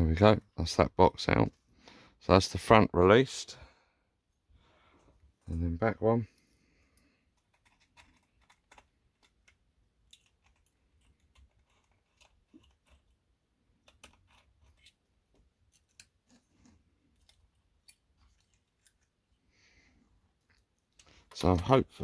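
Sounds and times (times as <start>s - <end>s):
small clicks and taps: 7.0s - 13.2s.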